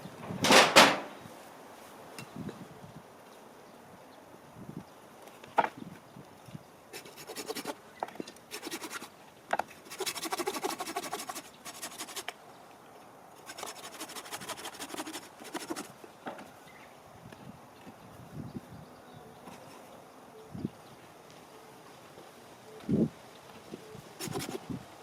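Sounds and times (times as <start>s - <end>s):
rasping scraping noise: 7.0s - 7.8s, 8.5s - 9.1s, 9.7s - 12.3s, 13.4s - 16.0s, 24.2s - 24.7s.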